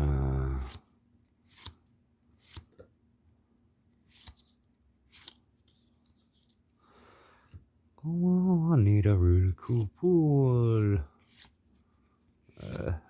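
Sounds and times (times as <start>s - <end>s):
cards clicking against cards: 4.1s - 5.8s.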